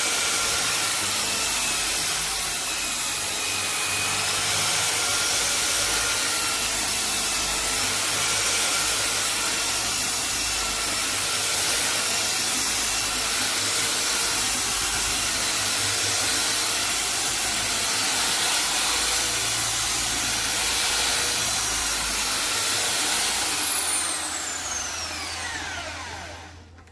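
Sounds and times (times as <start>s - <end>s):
power tool motor whining: 16.0s - 26.9s.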